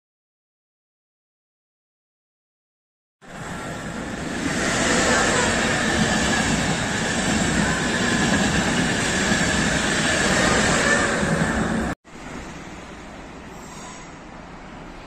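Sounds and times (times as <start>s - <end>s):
train coaches rumbling past: 3.2s - 15.0s.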